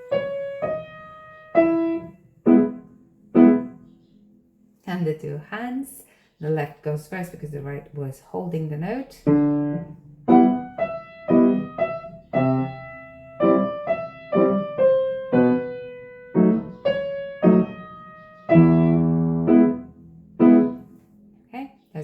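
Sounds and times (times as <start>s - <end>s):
piano notes and chords: 0.0s - 4.8s, 9.2s - 21.5s.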